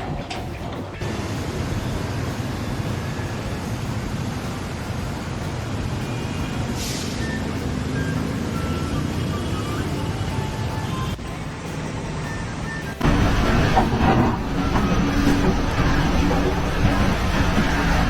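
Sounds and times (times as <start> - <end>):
vehicle engine running: 0.8 - 18.0
brief hiss: 6.7 - 7.4.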